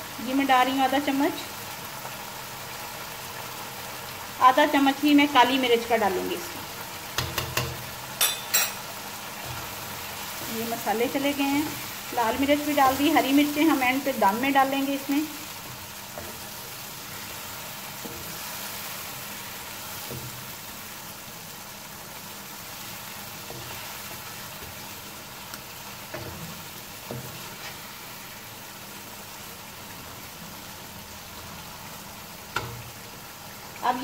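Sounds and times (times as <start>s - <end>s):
chicken sizzling in oil: 0.0s - 34.0s
wooden spatula knocking on pan: 7.2s - 7.8s.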